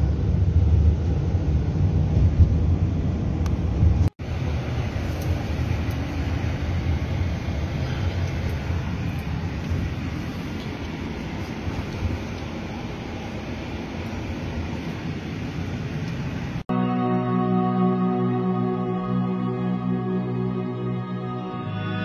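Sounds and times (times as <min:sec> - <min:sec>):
vehicle engine and road rumble: 0:00.0 - 0:16.7.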